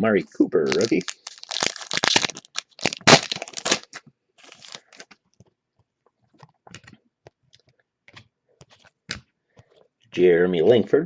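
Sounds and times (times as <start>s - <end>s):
plastic packaging crackling: 0.6s - 5.3s.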